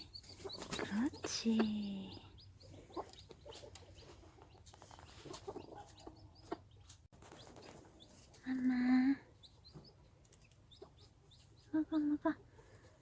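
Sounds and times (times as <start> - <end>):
hen clucking softly: 0.0 - 8.4
chicks peeping: 0.0 - 13.0.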